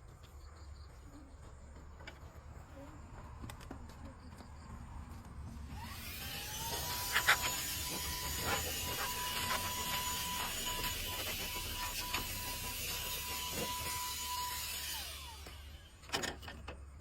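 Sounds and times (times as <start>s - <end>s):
car vacuum cleaner whine: 5.6s - 16.6s.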